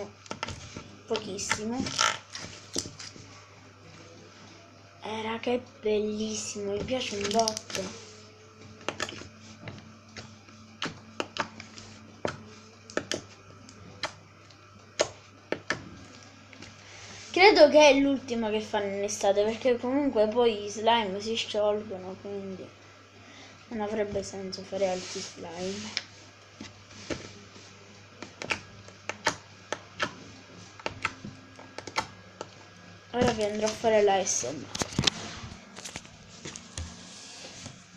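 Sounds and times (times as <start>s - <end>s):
faint steady hum: 0.0s - 37.9s.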